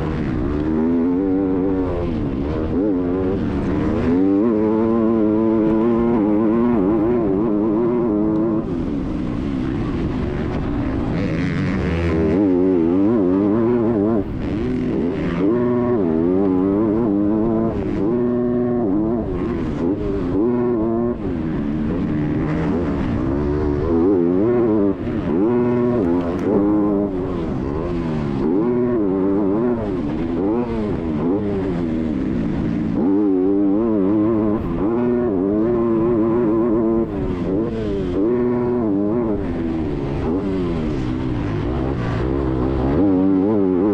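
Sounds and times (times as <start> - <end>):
motocross bike engine revving: 0.0 - 43.9.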